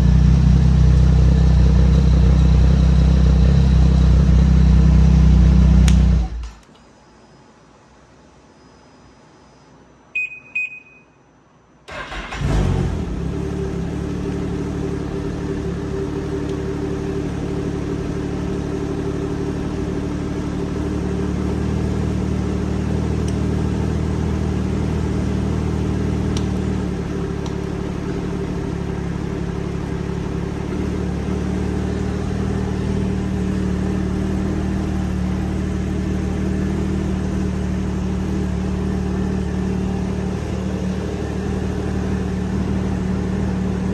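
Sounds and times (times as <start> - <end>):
snowmobile engine starting and idling: 0.0 - 6.6, 11.9 - 43.9
short electronic beep: 10.2 - 11.2.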